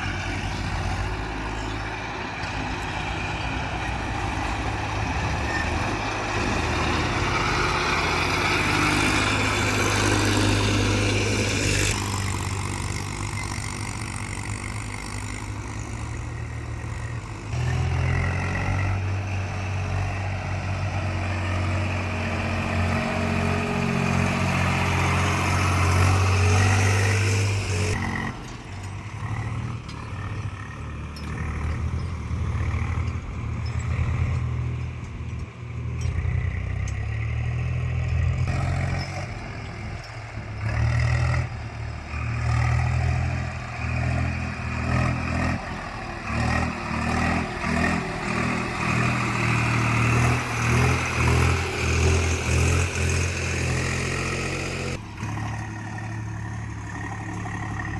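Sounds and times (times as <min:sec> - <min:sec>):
heavy diesel engine running: 0:00.0 - 0:37.2, 0:37.8 - 0:57.9.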